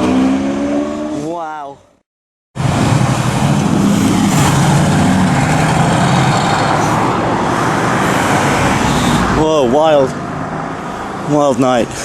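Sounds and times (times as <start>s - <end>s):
loud rough noise: 2.6s - 9.2s.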